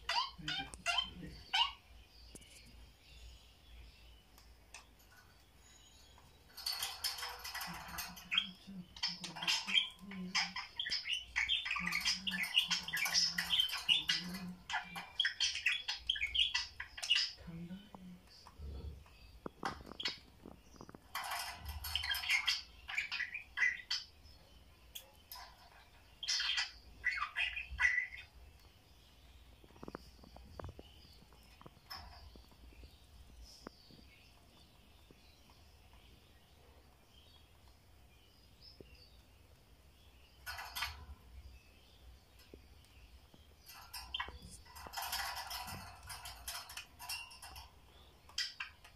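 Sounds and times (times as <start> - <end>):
budgerigars chattering: 0.0 - 1.8, 6.6 - 17.6, 19.0 - 24.2, 25.1 - 28.4, 43.7 - 47.6.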